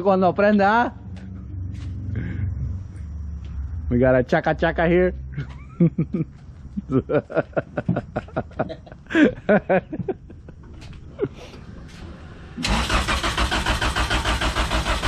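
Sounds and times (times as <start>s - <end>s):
voices: 0.0s - 12.8s
engine cranking on starter: 11.5s - 15.0s.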